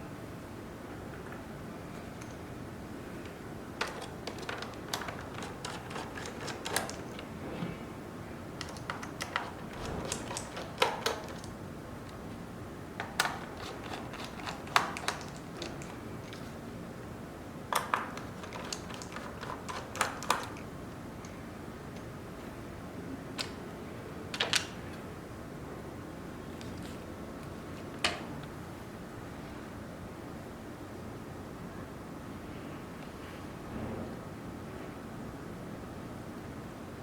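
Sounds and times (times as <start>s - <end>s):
plastic parts clicking: 3.8s - 7.2s, 8.6s - 11.6s, 13.0s - 16.5s, 17.7s - 20.6s.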